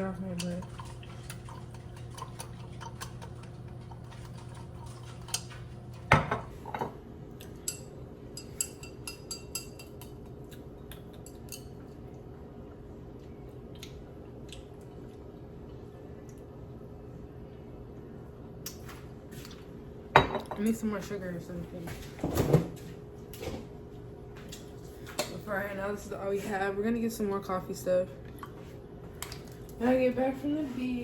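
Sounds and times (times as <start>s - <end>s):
low steady hum: 0.0s - 31.0s
spoon clinking in a mug: 7.6s - 10.2s.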